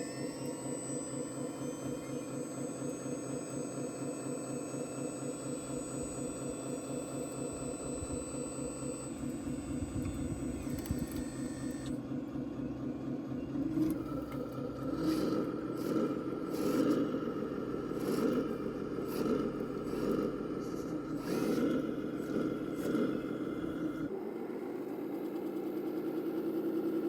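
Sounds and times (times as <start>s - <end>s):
high whine: 0.0s - 12.0s
model engine hum: 0.0s - 27.0s.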